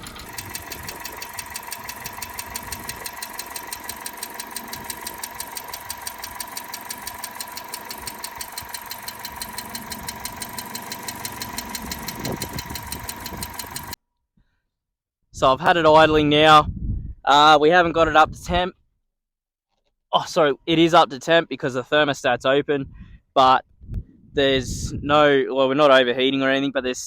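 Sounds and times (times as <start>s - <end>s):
car engine idling with tapping: 0.0s - 14.0s.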